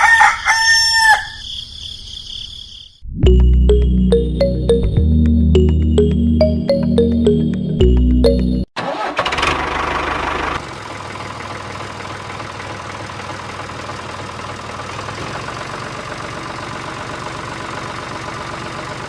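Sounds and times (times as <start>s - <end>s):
background music: 3.2s - 8.7s.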